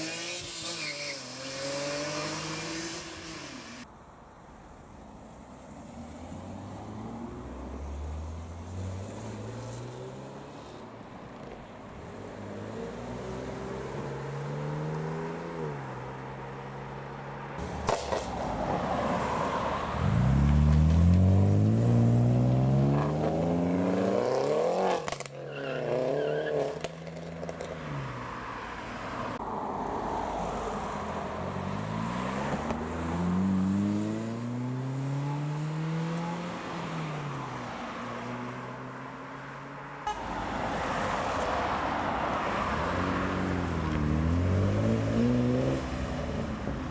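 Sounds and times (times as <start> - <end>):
cars accelerating away: 0.0 - 3.8, 19.0 - 28.2, 31.4 - 37.6, 42.5 - 46.6.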